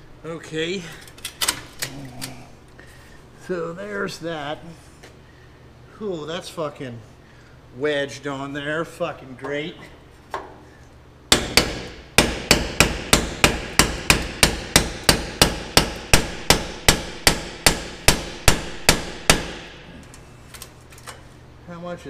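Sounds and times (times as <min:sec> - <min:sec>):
hammer striking metal: 0:11.3 - 0:19.9.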